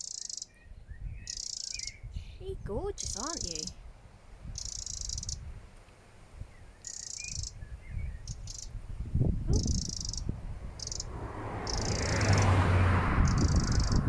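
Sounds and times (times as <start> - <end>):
bird alarm call trills: 0.0 - 3.8, 4.6 - 5.5, 6.8 - 8.8, 9.5 - 12.4, 13.2 - 14.0
faint bird chirps: 0.0 - 3.8, 4.5 - 5.5, 6.5 - 8.8, 9.5 - 11.1
wind rumble on microphone: 0.6 - 14.0.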